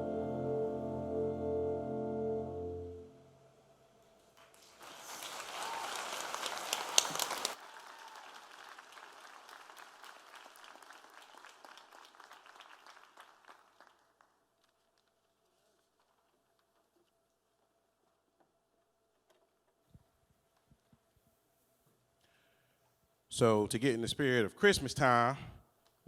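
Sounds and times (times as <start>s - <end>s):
audience applauding: 4.3s - 15.0s.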